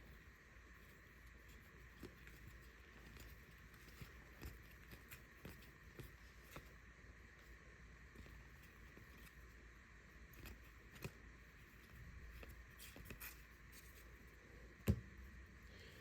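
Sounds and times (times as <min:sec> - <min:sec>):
handling trading cards: 0:00.8 - 0:06.8, 0:10.2 - 0:15.1.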